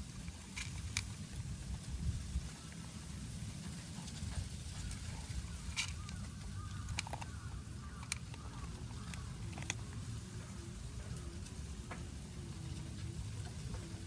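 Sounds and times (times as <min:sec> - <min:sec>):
kittens crunching dry food: 0:00.0 - 0:14.0
low outdoor rumble: 0:00.0 - 0:14.0.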